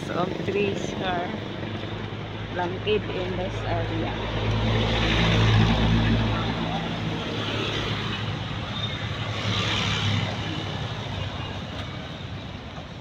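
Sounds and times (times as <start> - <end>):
road noise: 0.0 - 13.0
vehicle engine passing: 2.7 - 12.4.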